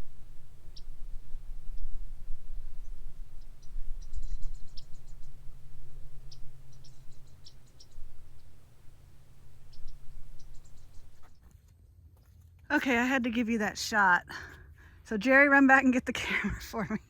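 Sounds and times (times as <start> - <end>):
wind rumbling on microphone: 0.0 - 11.4.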